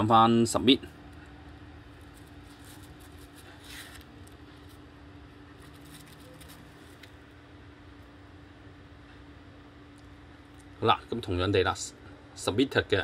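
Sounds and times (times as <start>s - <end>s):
steady low hum: 0.0s - 13.0s
soft rustle: 1.8s - 4.9s, 5.6s - 7.3s.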